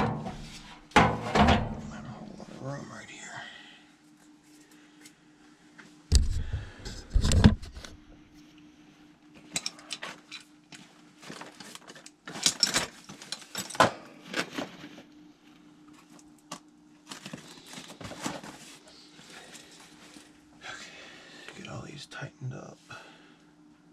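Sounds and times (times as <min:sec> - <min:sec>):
faint steady hum: 0:00.0 - 0:23.9
metal tools clinking and rattling: 0:11.3 - 0:13.9.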